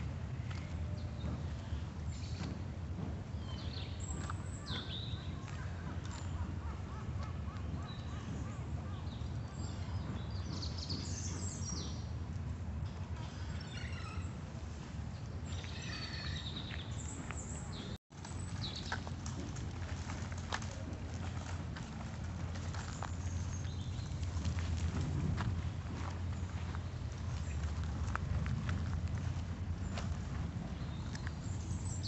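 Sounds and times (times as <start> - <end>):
low outdoor rumble: 0.0 - 32.0
birds chirping: 3.2 - 12.2.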